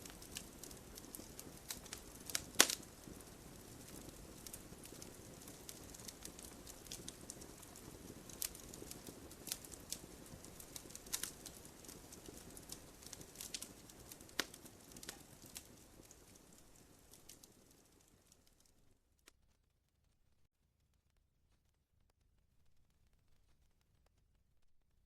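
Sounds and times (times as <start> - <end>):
wood fire crackling and popping: 0.0 - 19.3.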